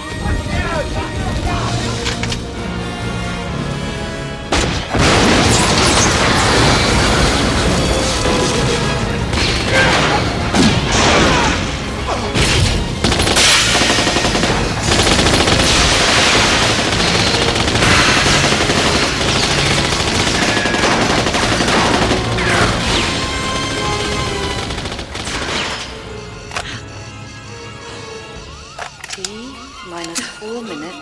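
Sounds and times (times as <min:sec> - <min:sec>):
action film score: 0:00.0 - 0:31.0
automatic gunfire: 0:04.9 - 0:26.2.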